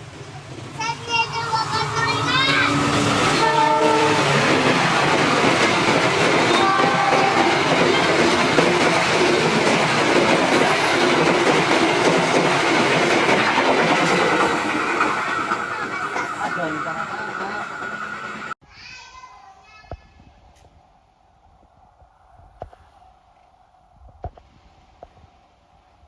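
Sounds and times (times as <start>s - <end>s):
train carriages rumbling over rails: 0.0s - 18.6s.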